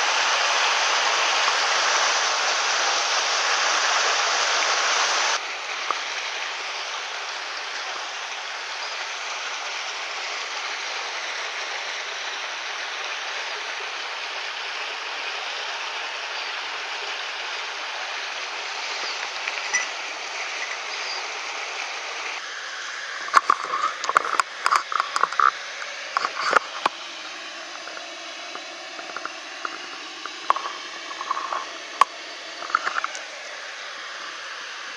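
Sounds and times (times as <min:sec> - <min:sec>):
stream water rushing: 0:00.0 - 0:34.9
sharp clicks and knocks: 0:23.3 - 0:33.2.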